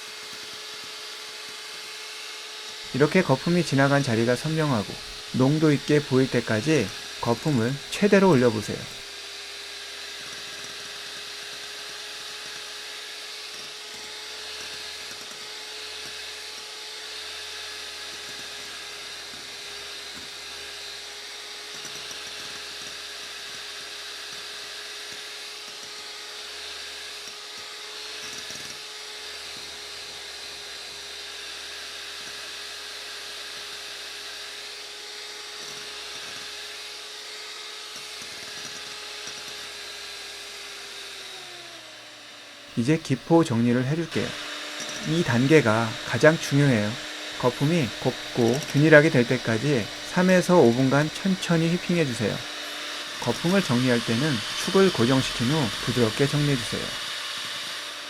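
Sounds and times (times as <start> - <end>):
electric hand mixer running: 0.0 - 58.0.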